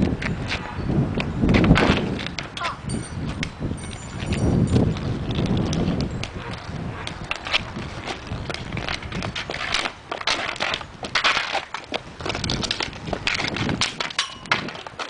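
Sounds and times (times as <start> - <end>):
crunching and scraping on ground: 3.9 - 15.0.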